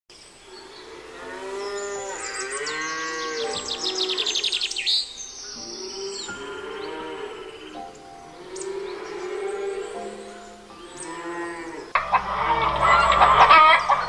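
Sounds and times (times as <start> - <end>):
bird trilling: 1.6 - 14.0
cattle mooing: 10.8 - 13.9.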